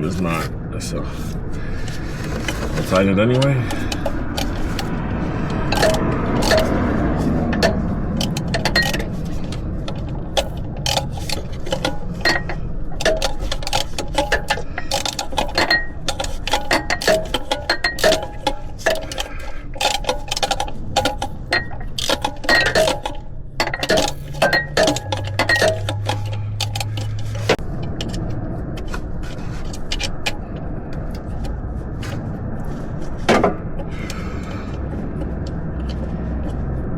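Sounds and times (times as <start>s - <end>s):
steady low hum: 0.0s - 36.9s
wrench clicking on metal: 5.5s - 27.5s.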